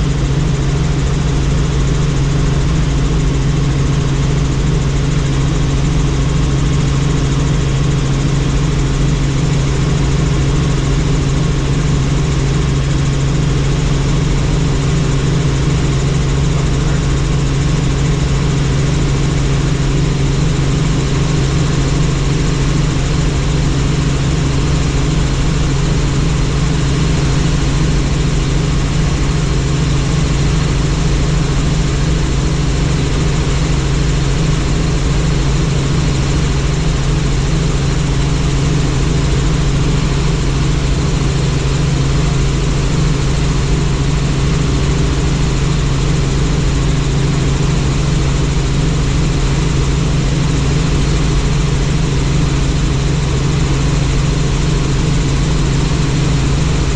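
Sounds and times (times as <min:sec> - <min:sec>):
helicopter drone: 0:00.0 - 0:56.9.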